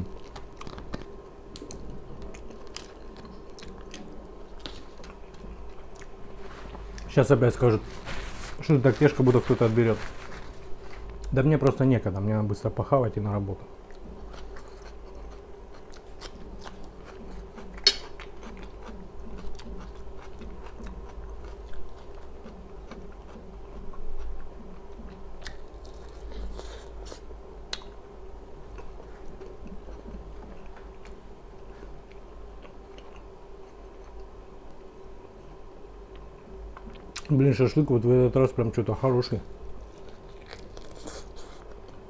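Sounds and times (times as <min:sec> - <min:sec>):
person chewing food: 0:00.0 - 0:07.1, 0:13.8 - 0:28.0, 0:28.6 - 0:35.4, 0:39.8 - 0:42.0.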